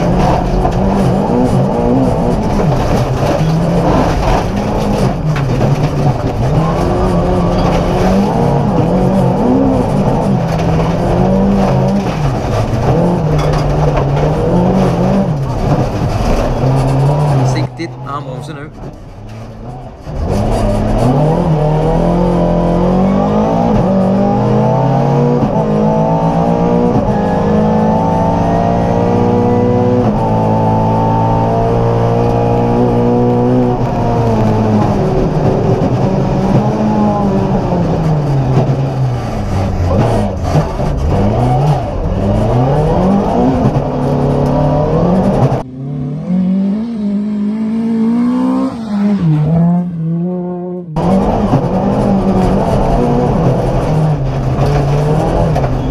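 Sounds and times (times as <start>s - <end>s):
rally car engine revving: 0.0s - 55.9s.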